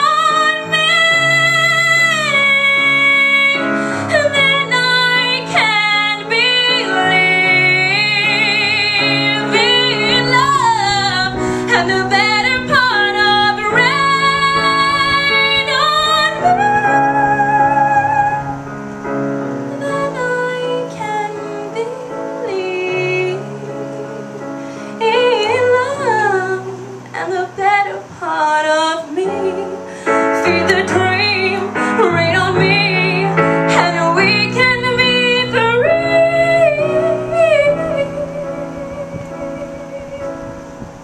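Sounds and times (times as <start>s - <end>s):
woman singing a slow ballad: 0.0s - 18.7s, 19.6s - 40.7s
instrumental accompaniment: 29.0s - 41.0s.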